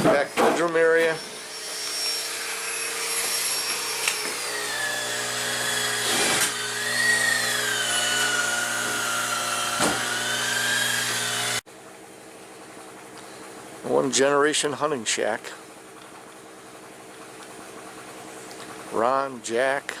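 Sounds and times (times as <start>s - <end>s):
electric motor whining: 0.9s - 11.6s.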